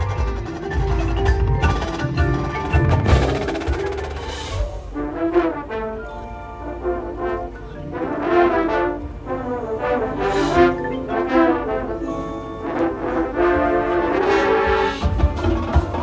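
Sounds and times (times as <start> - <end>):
drums hitting hard: 0.0 - 5.0, 15.0 - 16.0
brass section loud chords: 3.2 - 15.4.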